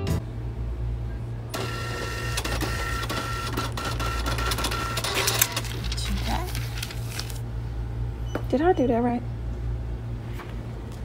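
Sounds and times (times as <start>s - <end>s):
steady low hum: 0.0s - 11.0s
receipt printer whirring and clicking: 1.5s - 7.4s
sharp printer click: 1.6s - 5.6s.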